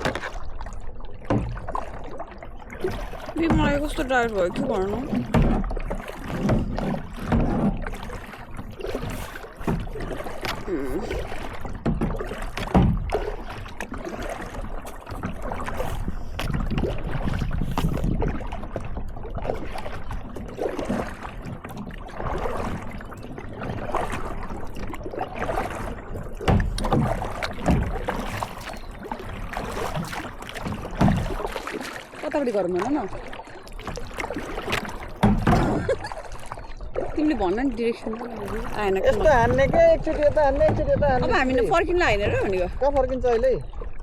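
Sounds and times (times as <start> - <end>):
paddle strokes: 0.0 - 44.0
water splashing against boat: 0.0 - 44.0
wind on microphone: 15.3 - 21.1, 36.9 - 44.0.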